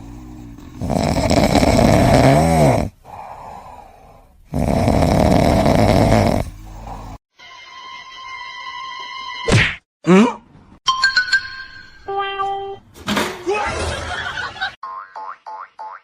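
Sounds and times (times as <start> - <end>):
pet snoring loudly: 0.0 - 7.2.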